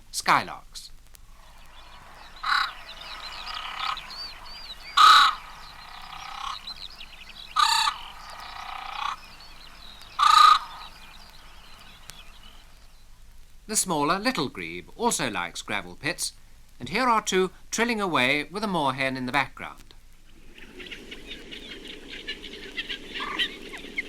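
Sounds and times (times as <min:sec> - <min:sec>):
faint drawn-out bird calls: 0:01.2 - 0:13.2, 0:20.0 - 0:24.0
grebes croaking calls: 0:01.3 - 0:12.9, 0:20.3 - 0:24.0.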